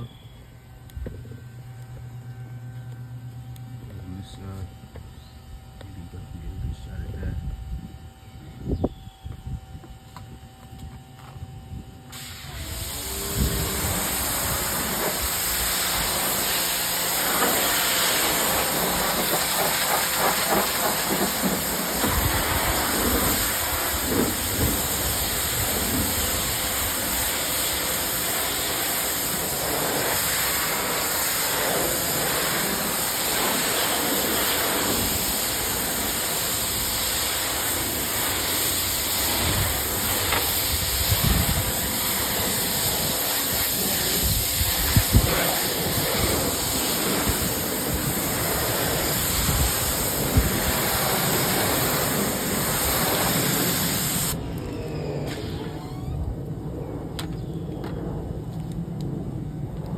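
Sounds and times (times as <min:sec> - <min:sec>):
pressure washer spraying water: 0:12.1 - 0:54.4.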